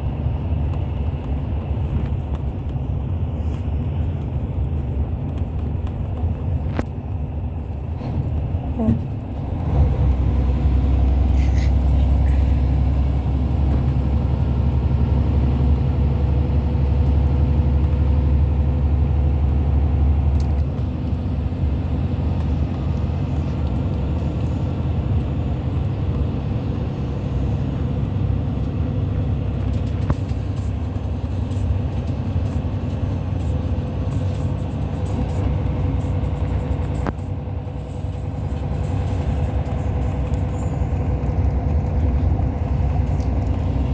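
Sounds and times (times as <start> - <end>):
bus engine and road rumble: 0.0 - 43.9.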